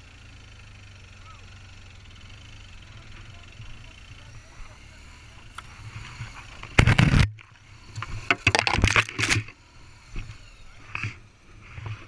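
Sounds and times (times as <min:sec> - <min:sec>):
motorcycle engine running: 0:00.0 - 0:12.0
rough scraping noise: 0:05.6 - 0:09.6.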